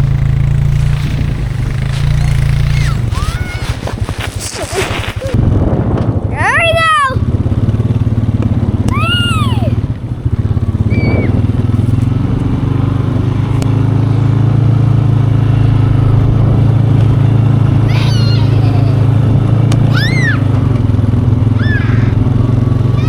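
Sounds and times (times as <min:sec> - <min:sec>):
atv engine running: 0:00.0 - 0:23.0
short high cries: 0:08.9 - 0:09.8, 0:17.9 - 0:19.1, 0:21.6 - 0:22.2.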